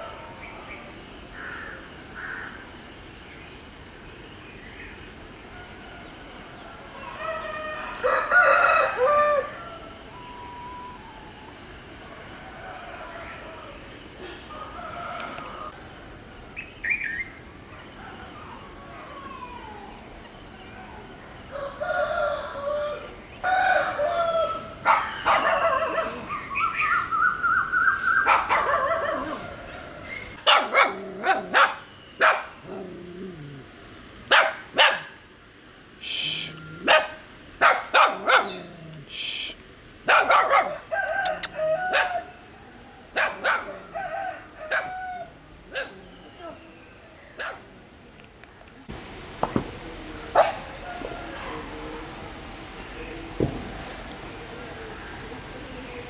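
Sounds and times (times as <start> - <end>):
dogs barking: 23.6 - 27.0, 28.0 - 32.6, 34.3 - 35.2, 36.8 - 38.7, 40.0 - 42.4, 43.1 - 46.1, 47.3 - 47.7, 50.3 - 51.7.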